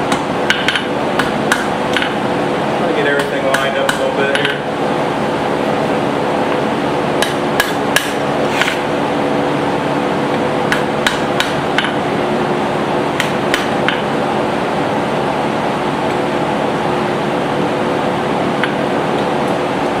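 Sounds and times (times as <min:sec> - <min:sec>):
steady mechanical drone: 0:00.0 - 0:20.0
hammer striking hot steel on anvil: 0:07.2 - 0:08.8, 0:10.7 - 0:12.0, 0:13.2 - 0:14.0.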